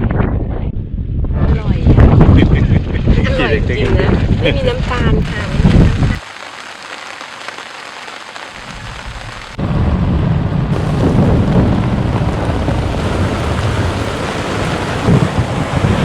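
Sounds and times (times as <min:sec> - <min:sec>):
wind buffeting microphone: 0:00.0 - 0:06.2, 0:08.7 - 0:16.0.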